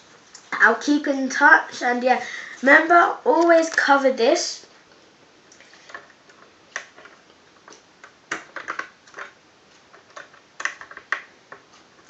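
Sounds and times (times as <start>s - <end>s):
plastic toy pieces clicking: 10.1s - 11.3s.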